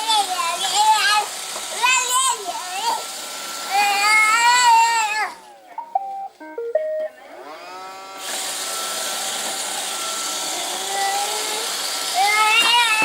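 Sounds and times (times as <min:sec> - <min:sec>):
robot vacuum beeping tune: 0:05.8 - 0:07.9
robot vacuum motor running: 0:07.2 - 0:13.0.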